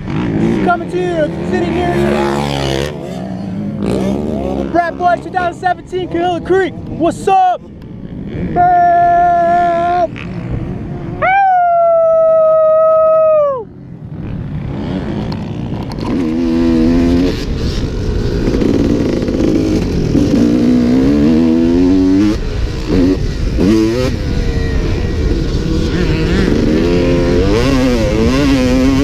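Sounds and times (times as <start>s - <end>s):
dirt bike engine revving: 0.0s - 11.2s, 12.0s - 29.0s
rushing wind: 0.0s - 29.0s
high-pitched howls: 11.0s - 13.7s.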